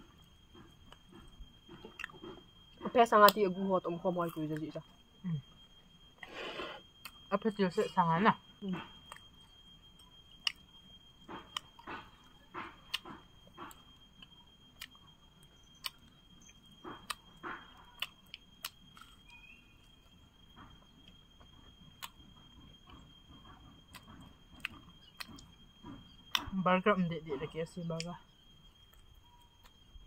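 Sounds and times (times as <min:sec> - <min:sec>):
chewing crunchy chicken: 0:00.5 - 0:02.6, 0:11.2 - 0:15.1, 0:15.7 - 0:19.8, 0:20.5 - 0:26.5.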